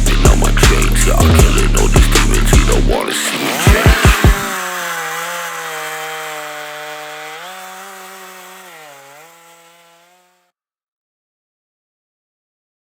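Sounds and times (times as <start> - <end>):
chainsaw engine running: 0.0 - 10.5.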